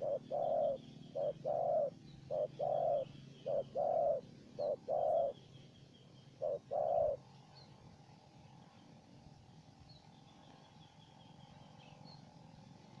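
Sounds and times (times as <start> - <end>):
doves cooing: 0.0 - 5.4, 6.3 - 7.6
faint high bird chirps: 0.0 - 9.0.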